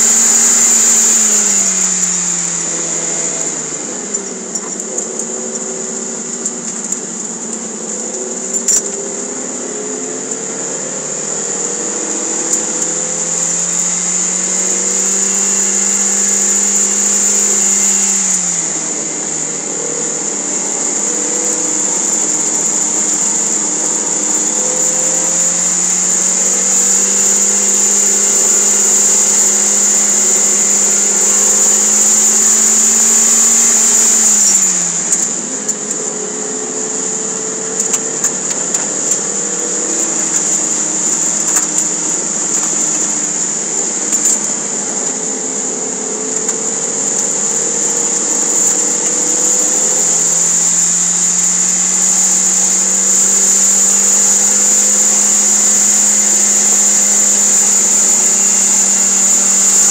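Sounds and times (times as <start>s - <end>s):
high-pitched whine: 0.0s - 59.9s.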